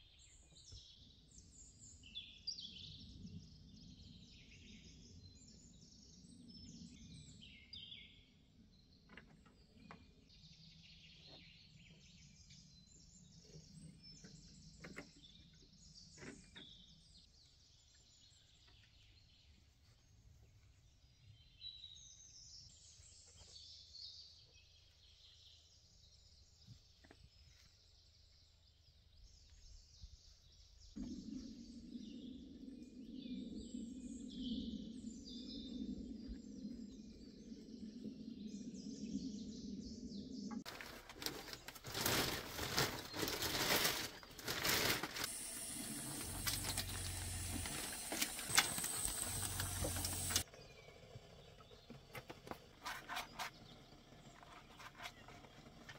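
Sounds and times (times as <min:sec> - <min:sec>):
birds chirping and calling: 0:41.3 - 0:55.9.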